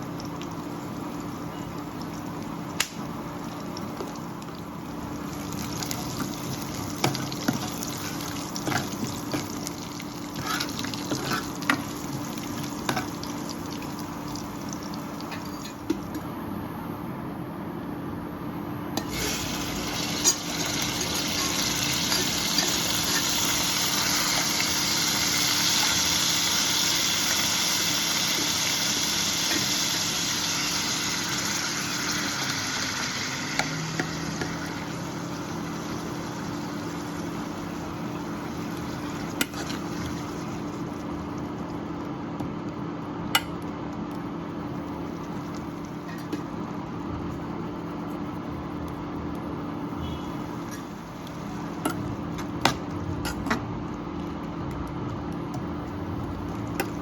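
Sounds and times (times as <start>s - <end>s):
food sizzling in a pan: 0.0s - 15.8s, 19.0s - 41.9s.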